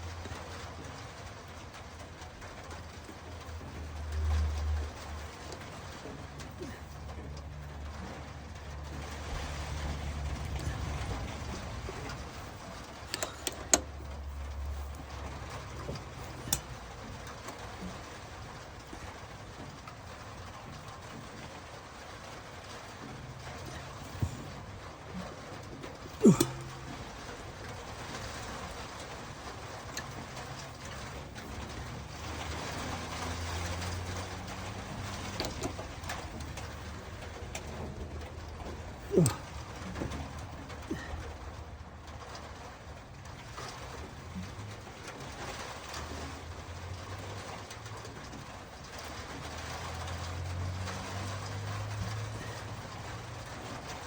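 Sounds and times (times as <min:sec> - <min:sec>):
metallic clicks and knocks: 0:09.7 - 0:18.0.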